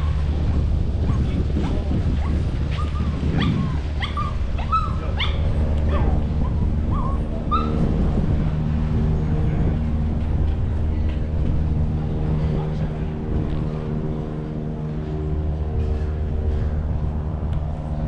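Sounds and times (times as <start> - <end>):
droning tone: 0.0 - 18.0
steady low hum: 0.0 - 18.0
dog whimpering and yipping: 2.2 - 7.8.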